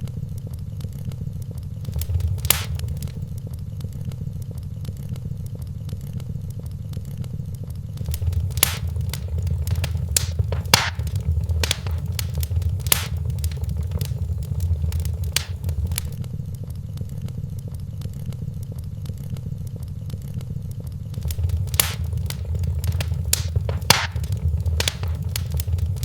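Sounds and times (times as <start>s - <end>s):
wood fire crackling and popping: 1.8s - 3.3s, 8.0s - 16.2s, 21.1s - 26.0s.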